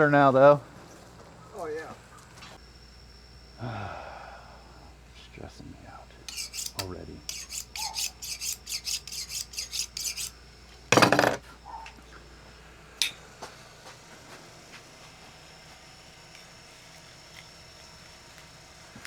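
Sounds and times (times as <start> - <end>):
knife being sharpened: 6.3 - 10.4.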